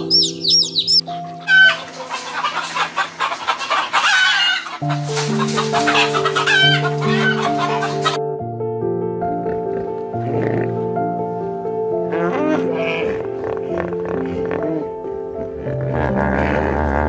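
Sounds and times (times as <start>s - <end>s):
high repeated chirps: 0.0s - 1.8s
flock of birds calling: 0.0s - 8.2s
gentle background music: 0.0s - 17.0s.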